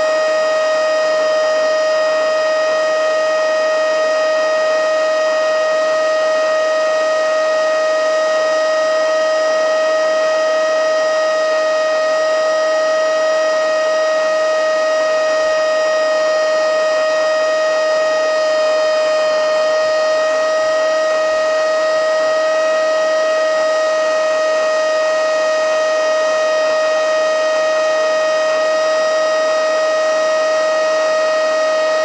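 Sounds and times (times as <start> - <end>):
vacuum cleaner motor whine: 0.0 - 32.0.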